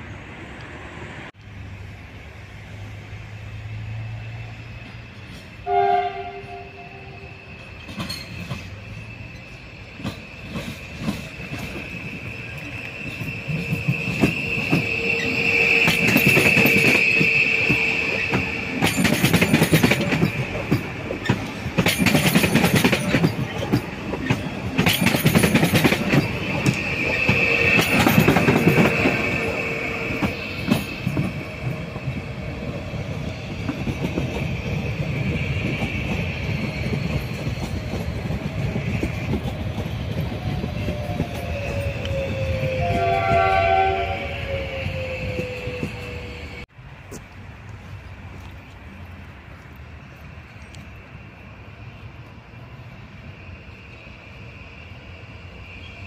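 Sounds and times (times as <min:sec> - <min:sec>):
train wheels squealing: 0:03.6 - 0:46.7, 0:50.4 - 0:56.0
wheels clattering over rail joints: 0:07.6 - 0:15.0, 0:15.8 - 0:41.5.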